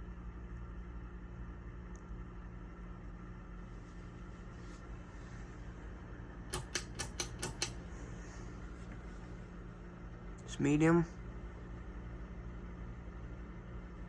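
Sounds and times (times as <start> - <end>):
ceiling fan motor humming: 0.0 - 14.0
pull chain switch clicks: 6.5 - 7.8.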